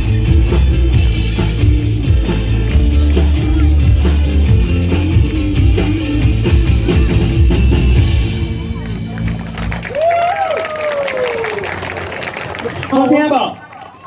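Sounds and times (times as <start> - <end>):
instrumental pop band music: 0.0 - 10.3.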